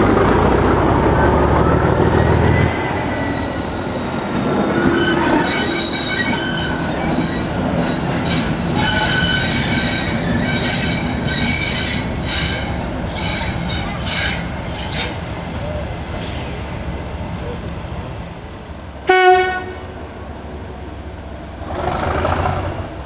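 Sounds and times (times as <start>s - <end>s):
low train rumble: 0.0s - 23.0s
train wheels squealing: 2.0s - 16.6s.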